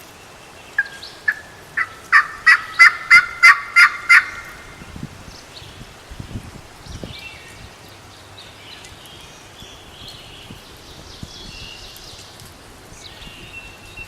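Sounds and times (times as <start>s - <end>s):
turkey yelps: 0.8s - 4.7s.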